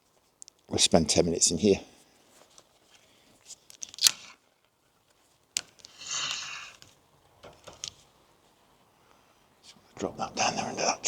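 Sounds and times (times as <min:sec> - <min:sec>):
fishing tackle clicks: 0:03.7 - 0:04.3.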